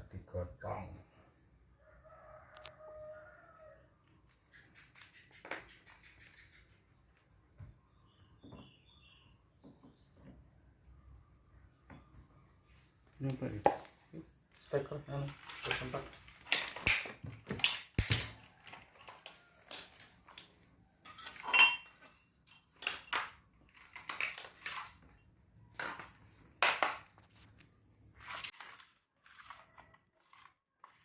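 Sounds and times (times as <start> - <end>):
hard objects clattering: 15.3 - 27.3.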